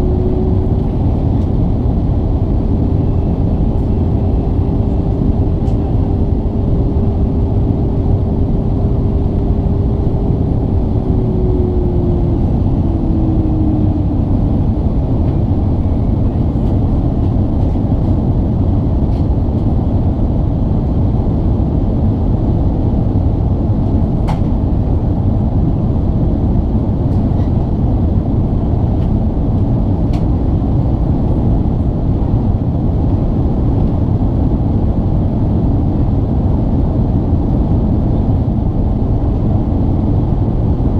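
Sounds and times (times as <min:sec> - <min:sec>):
humming tone sliding lower: 0:00.0 - 0:16.8
aircraft engines and airflow rumble: 0:00.0 - 0:40.9.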